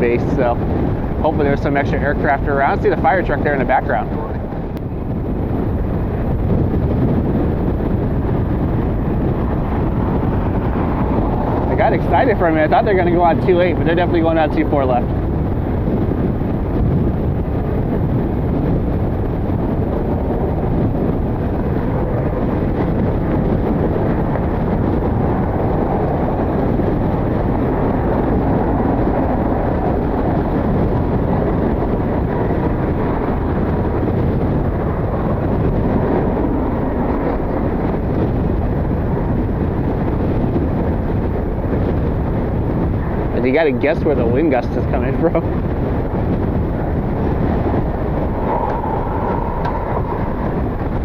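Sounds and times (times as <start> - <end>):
wind buffeting microphone: 0.0 - 51.0.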